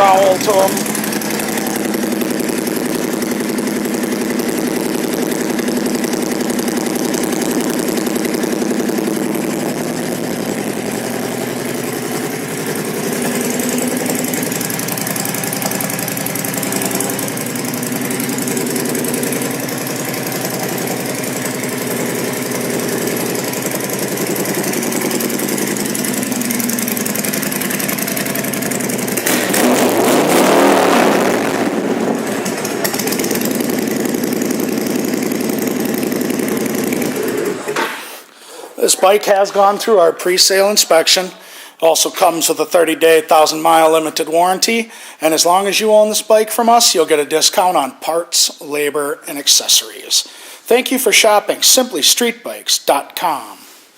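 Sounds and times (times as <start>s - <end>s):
motorcycle engine idling: 0.0s - 29.9s, 30.6s - 37.8s.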